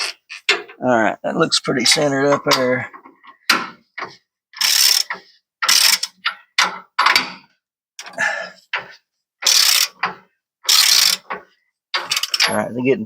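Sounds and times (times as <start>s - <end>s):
ratchet wrench clicking: 4.6s - 6.2s, 9.4s - 10.1s, 10.7s - 11.4s, 12.0s - 12.5s.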